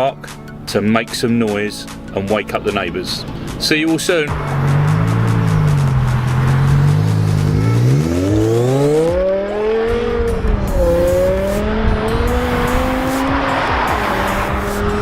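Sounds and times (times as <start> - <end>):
car engine revving: 4.2 - 15.0.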